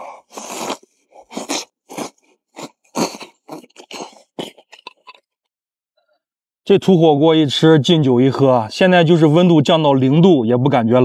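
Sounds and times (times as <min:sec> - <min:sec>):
man chewing meat: 0:00.0 - 0:05.2.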